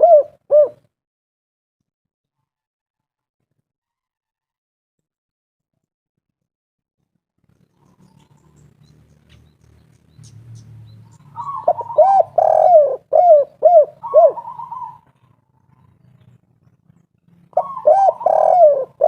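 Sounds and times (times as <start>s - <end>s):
dove cooing: 0.0s - 0.9s, 11.1s - 16.3s, 17.4s - 19.0s.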